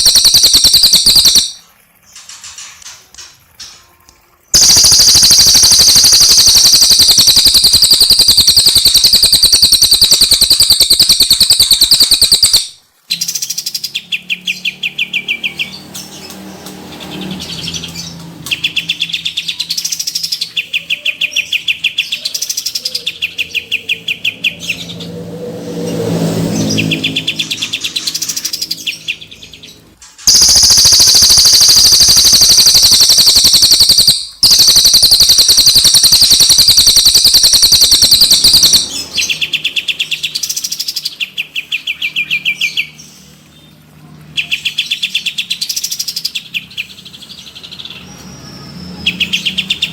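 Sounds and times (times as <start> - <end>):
fast high bird trill: 0.0 - 1.6, 4.6 - 15.8, 30.3 - 41.1
lower bird trill: 0.0 - 1.6, 4.6 - 15.6, 30.3 - 41.0.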